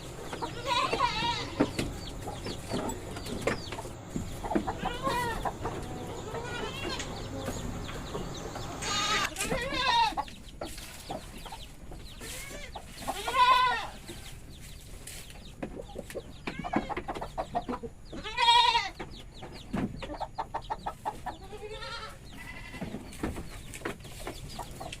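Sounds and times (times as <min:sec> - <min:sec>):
goats bleating: 0:00.4 - 0:01.8, 0:04.6 - 0:07.4, 0:08.8 - 0:10.2, 0:12.3 - 0:14.0, 0:18.2 - 0:19.0, 0:21.4 - 0:22.9.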